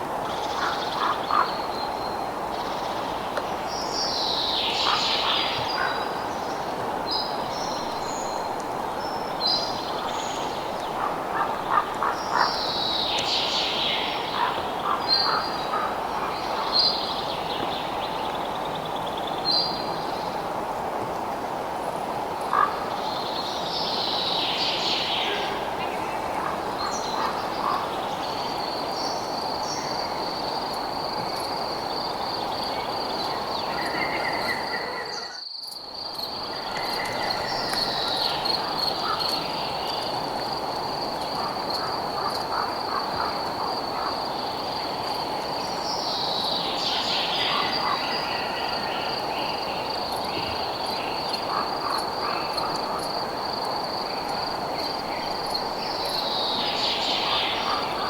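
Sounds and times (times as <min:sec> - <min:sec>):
insect chirps and falling calls: 0:32.3 - 0:44.2.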